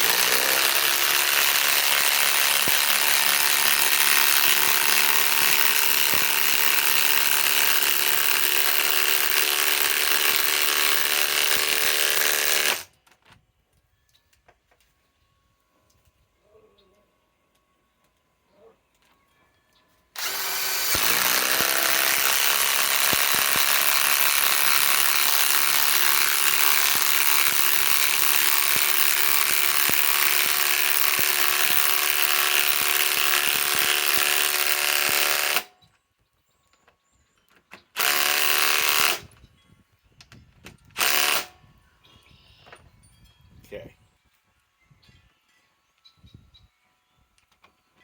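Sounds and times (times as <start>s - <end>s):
impact wrench driving screw: 0.0s - 12.9s, 20.2s - 35.7s, 38.0s - 39.2s, 41.0s - 41.5s.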